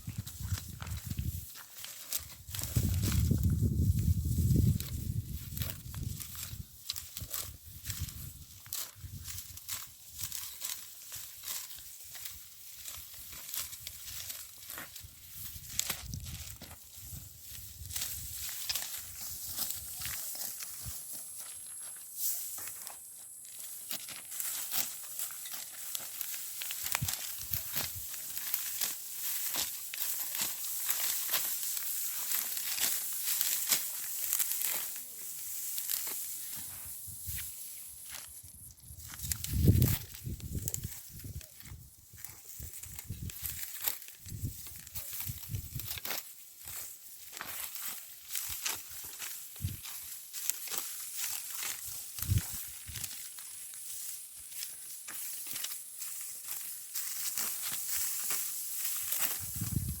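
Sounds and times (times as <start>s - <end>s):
dry stalks rustling and crackling: 0.0s - 60.0s.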